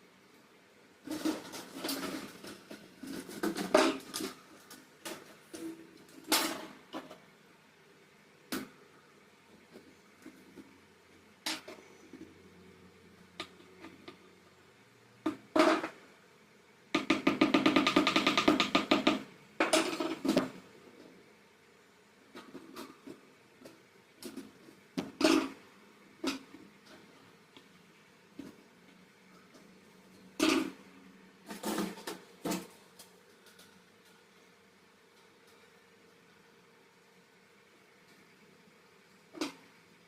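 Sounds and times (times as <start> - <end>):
knocks and clicks of fan parts: 1.1 - 7.2, 15.2 - 16.0, 17.0 - 20.6.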